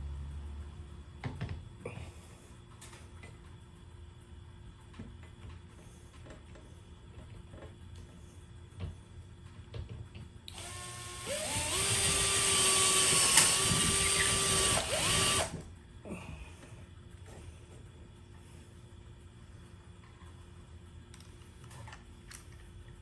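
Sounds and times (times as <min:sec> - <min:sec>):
power drill spinning: 0:10.5 - 0:15.6.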